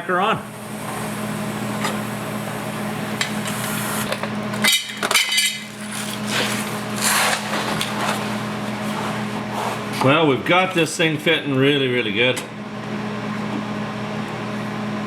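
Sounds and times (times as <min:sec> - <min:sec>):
steady shop hum: 0:00.0 - 0:15.0.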